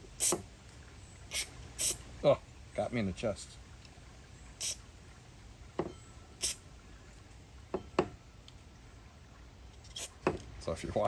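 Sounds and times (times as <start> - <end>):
aerosol spray hissing: 0.2 - 0.4, 1.3 - 2.0.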